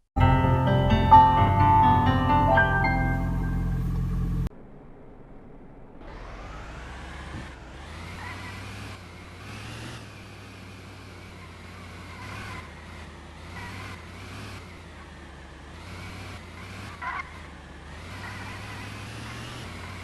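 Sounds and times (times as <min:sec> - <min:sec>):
short tonal sound: 0:00.2 - 0:06.1
road and tyre rumble: 0:01.1 - 0:20.0.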